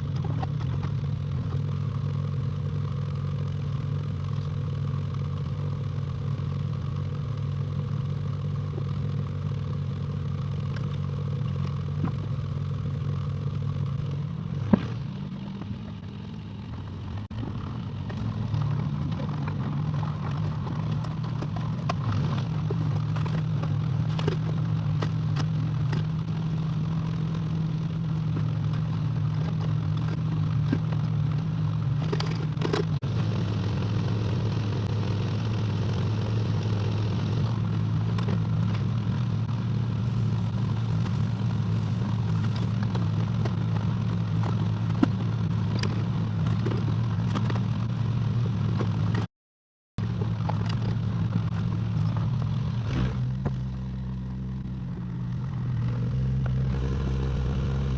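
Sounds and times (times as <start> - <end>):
excavator diesel engine running: 40.0 - 43.2.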